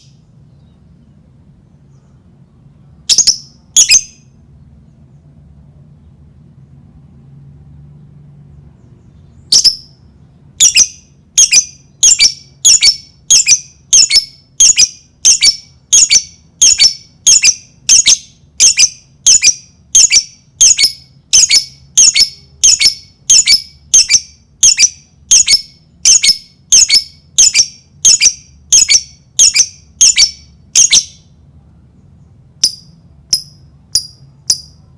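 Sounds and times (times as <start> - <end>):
lovebird shrill calls: 3.1 - 4.2, 9.5 - 9.9, 10.6 - 31.2.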